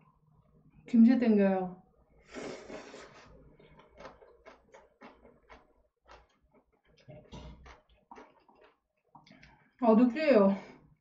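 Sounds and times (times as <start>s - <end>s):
person slurping: 2.2s - 6.2s
chewing with wet mouth clicks: 3.6s - 9.6s.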